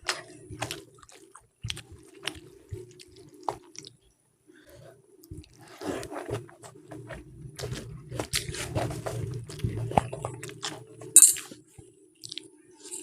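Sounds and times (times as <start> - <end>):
person chewing food: 0.0 - 13.0
wet mouth clicks and smacks: 12.2 - 12.5.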